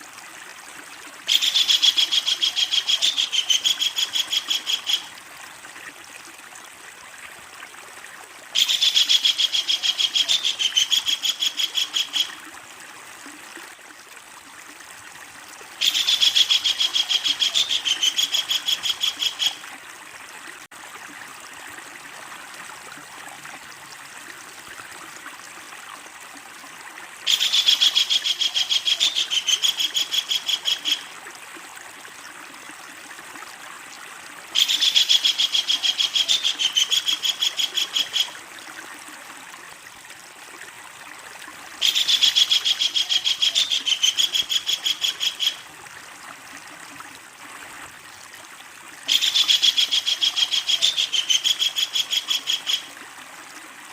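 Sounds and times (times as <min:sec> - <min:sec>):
kingfisher rattling call: 0:41.8 - 0:45.6.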